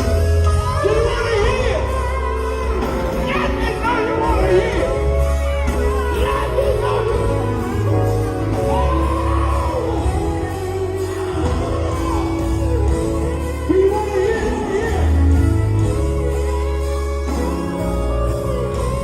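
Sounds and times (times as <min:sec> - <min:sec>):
bass and held chords: 0:00.0 - 0:19.0
lead voice singing: 0:00.8 - 0:19.0
shouts: 0:05.8 - 0:15.6.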